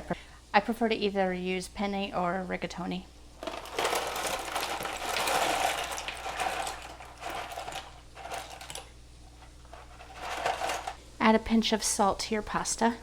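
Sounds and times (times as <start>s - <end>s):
dry pasta rattling in box: 3.4s - 11.0s.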